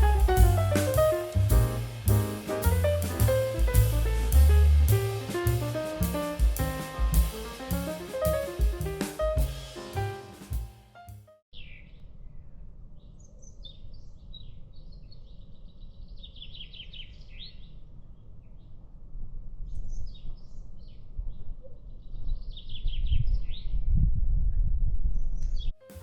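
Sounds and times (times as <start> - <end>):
low outdoor rumble: 0.0 - 10.8.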